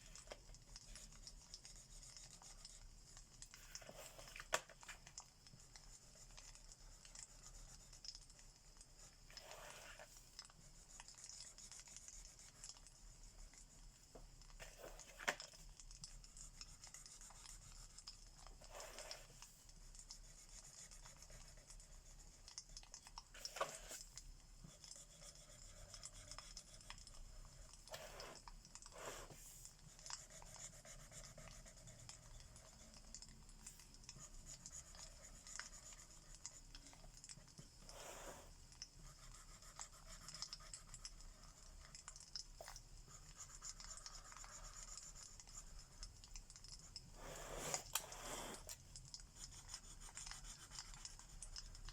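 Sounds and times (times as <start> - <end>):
markers scratching on paper: 0.0 - 2.8, 3.6 - 5.0, 9.0 - 13.5, 14.6 - 19.6, 20.2 - 22.7, 23.3 - 46.1, 47.2 - 48.8, 49.4 - 51.8
fireplace crackling hiss: 27.3 - 29.8, 37.6 - 39.0, 47.0 - 49.0.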